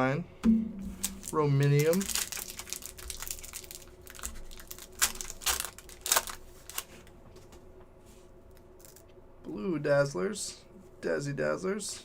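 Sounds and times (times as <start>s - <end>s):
trading cards clicking and rustling: 0.9s - 6.9s.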